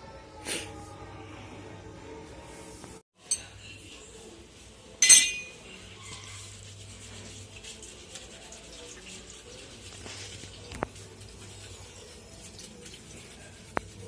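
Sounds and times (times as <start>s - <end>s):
sharp metallic clank: 5.0s - 5.6s.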